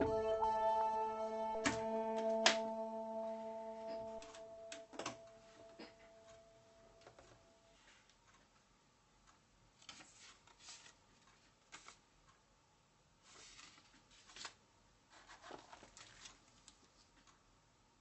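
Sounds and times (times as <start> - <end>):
paper and plastic crinkling: 13.3 - 17.2.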